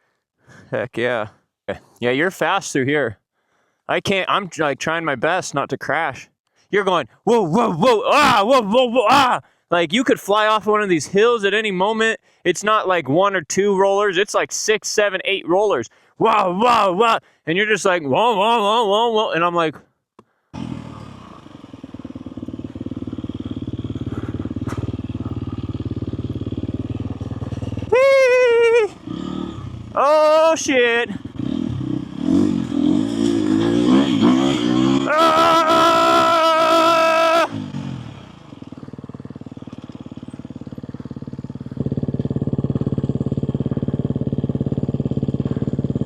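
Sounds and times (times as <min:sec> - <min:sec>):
dirt bike engine running: 0:20.6 - 0:46.0.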